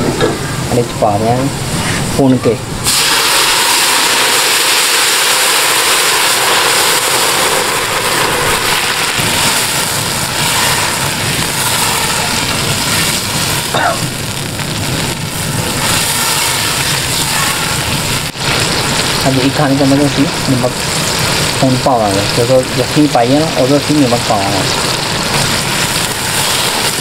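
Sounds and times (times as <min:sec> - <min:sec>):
stock being poured: 0:02.8 - 0:10.4
masala sizzling in ghee: 0:02.8 - 0:27.0.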